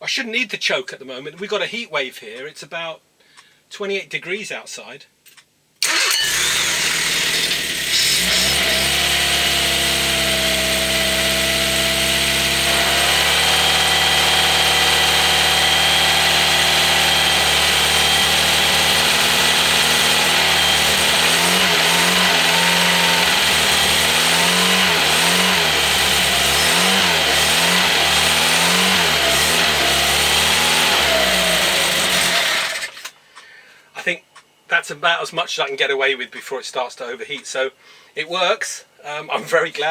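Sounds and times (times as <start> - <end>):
engine revving: 5.8 - 33.1
petrol engine starting and running: 5.8 - 33.2.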